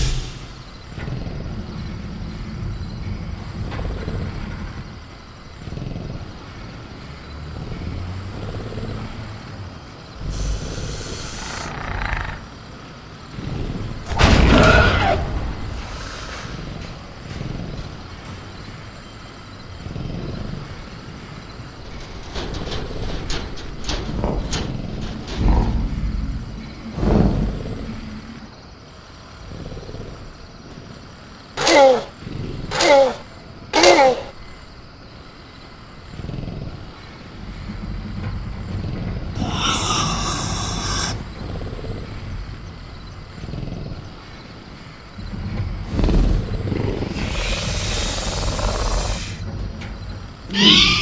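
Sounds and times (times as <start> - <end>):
raspy hiss: 0.0 - 1.3, 10.2 - 12.4, 14.7 - 17.2, 39.3 - 42.3, 44.2 - 49.5
low rumble: 0.0 - 7.8
cage clanking and knocking: 0.0 - 29.4, 35.4 - 51.0
creature growling low: 10.2 - 12.6, 36.1 - 42.6, 45.3 - 49.5.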